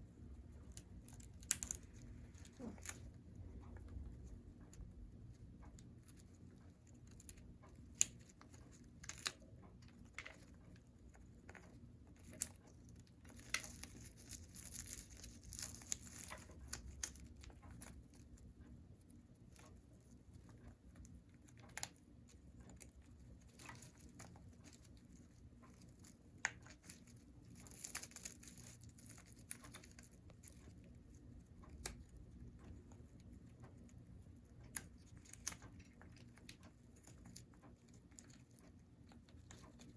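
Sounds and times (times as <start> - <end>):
crinkly tearing: 13.3 - 17.9, 25.7 - 30.7.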